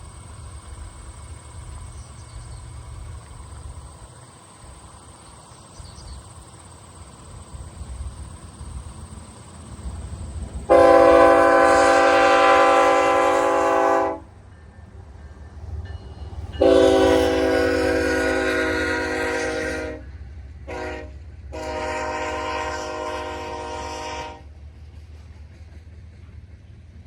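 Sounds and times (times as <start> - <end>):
locomotive air horn blast: 10.7 - 14.3, 16.6 - 24.5.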